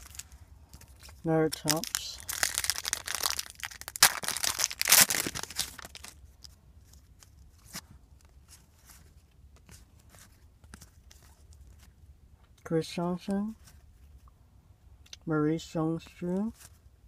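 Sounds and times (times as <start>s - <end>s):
foil wrapper tearing and crinkling: 0.0s - 0.2s, 1.5s - 6.2s
soft clicks and rustles: 6.2s - 14.4s.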